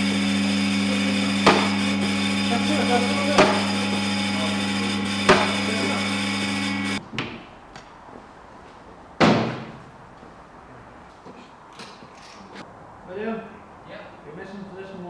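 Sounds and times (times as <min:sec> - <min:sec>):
steady mechanical hum: 0:00.0 - 0:13.3
sharp knocks: 0:01.4 - 0:02.3, 0:03.2 - 0:04.3, 0:05.2 - 0:07.5, 0:09.2 - 0:09.9.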